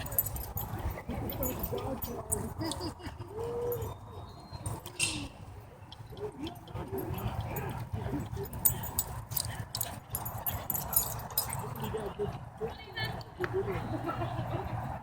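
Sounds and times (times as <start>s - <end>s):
dogs whining and grumbling: 0.0s - 4.8s.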